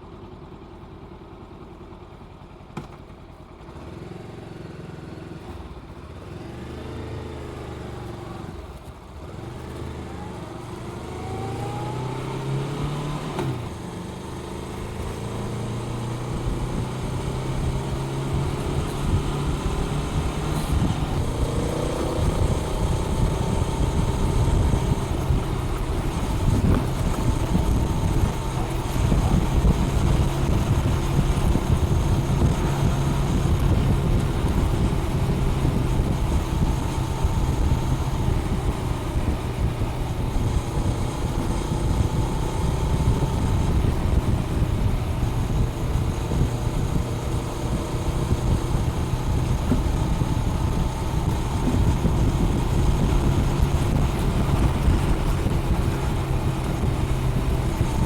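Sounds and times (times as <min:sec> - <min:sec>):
motorcycle engine cruising: 0:01.5 - 0:58.0
wind noise on microphone: 0:14.8 - 0:58.0.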